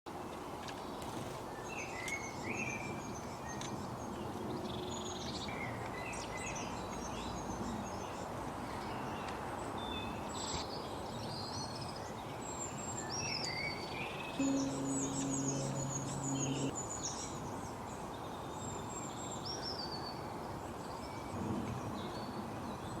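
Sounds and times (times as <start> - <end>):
small birds chirping: 8.8 - 16.7.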